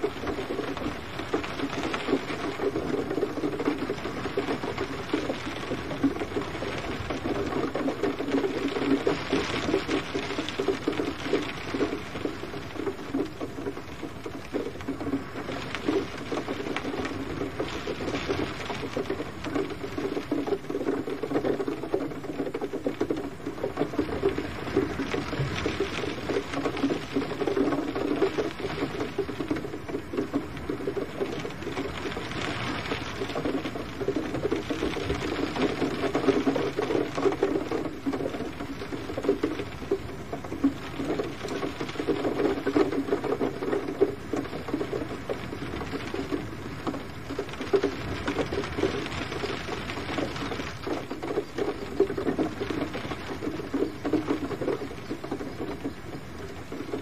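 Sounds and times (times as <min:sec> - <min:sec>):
raindrops ticking on a surface: 0:00.0 - 0:57.0
soft rain hiss: 0:00.0 - 0:57.0.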